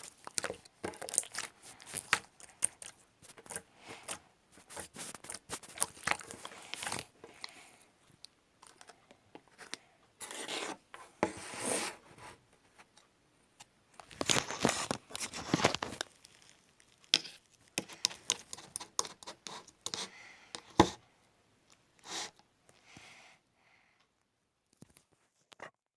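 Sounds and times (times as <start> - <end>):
slime crackling and popping: 0.0 - 3.6, 14.2 - 18.4.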